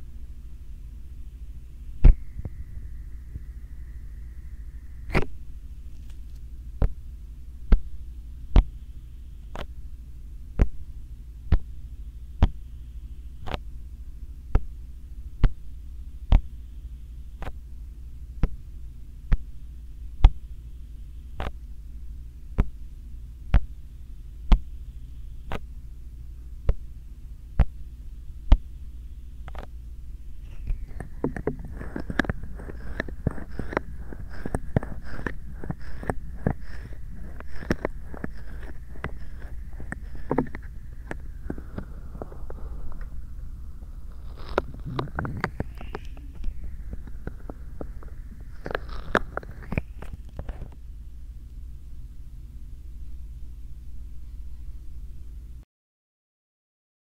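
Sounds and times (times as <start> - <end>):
steady low hum: 0.0 - 55.6
hands rubbing microphone: 30.4 - 50.8
hands tapping microphone: 30.5 - 43.2.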